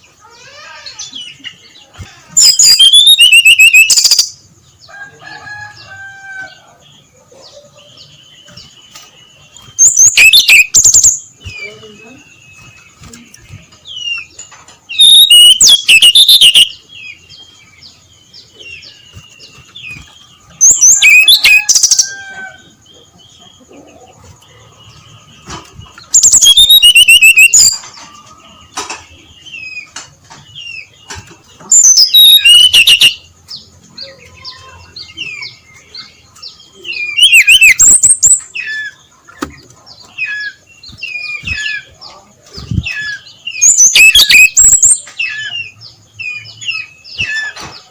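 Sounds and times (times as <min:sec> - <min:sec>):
soft bird twittering: 0:00.0 - 0:22.3, 0:22.9 - 0:29.9, 0:30.5 - 0:47.9
flycatcher singing rapid high phrases: 0:02.0 - 0:04.5, 0:08.5 - 0:13.9, 0:14.9 - 0:16.8, 0:18.9 - 0:22.1, 0:26.1 - 0:27.8, 0:31.8 - 0:34.9, 0:37.0 - 0:38.6, 0:40.5 - 0:45.0.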